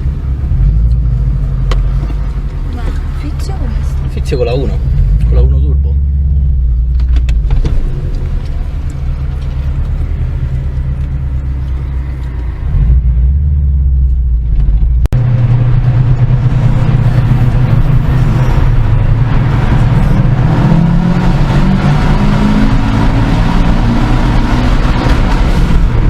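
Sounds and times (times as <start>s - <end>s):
car engine droning: 0.0s - 26.0s.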